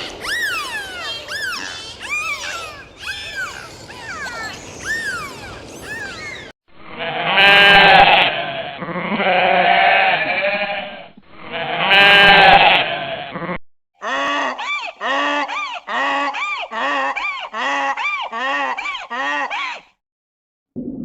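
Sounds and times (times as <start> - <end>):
farm animal bleating: 7.0 - 14.2.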